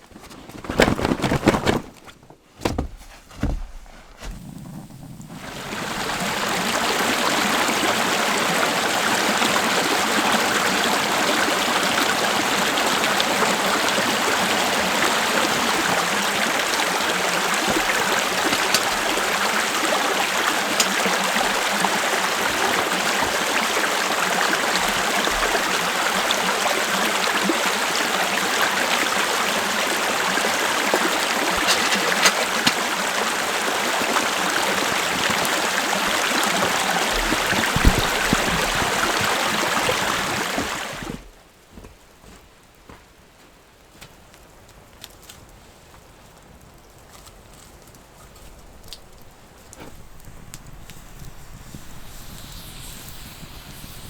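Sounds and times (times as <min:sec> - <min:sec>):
water rushing: 0:04.4 - 0:41.3.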